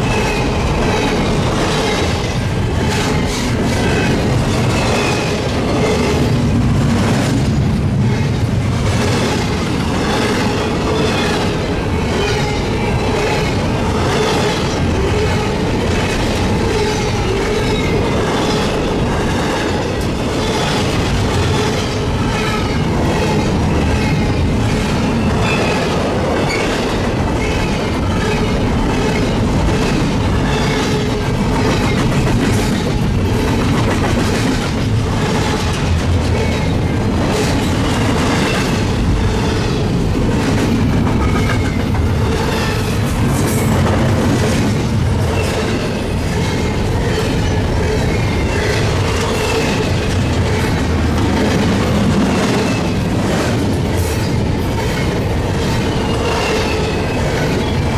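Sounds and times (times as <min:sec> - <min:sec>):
train rumble: 0:00.0 - 0:57.9
train wheels clicking on rail joints: 0:00.0 - 0:57.9.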